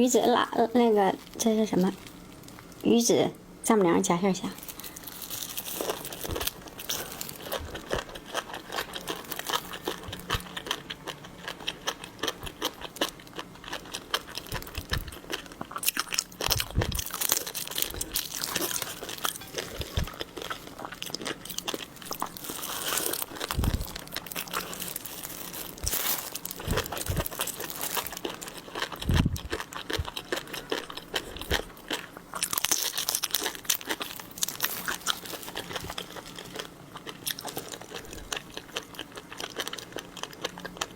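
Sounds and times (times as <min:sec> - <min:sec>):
shellfish shells crackling: 0:04.6 - 0:40.0
crunchy bites and chewing: 0:04.6 - 0:40.9.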